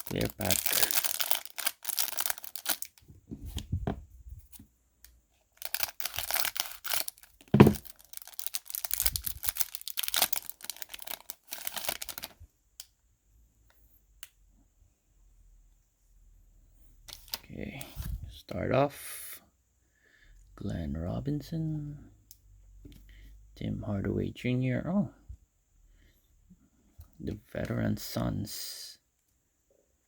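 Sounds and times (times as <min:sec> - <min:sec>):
plastic wrapper crinkling and tearing: 0:00.0 - 0:03.6, 0:05.5 - 0:12.4, 0:17.1 - 0:17.5.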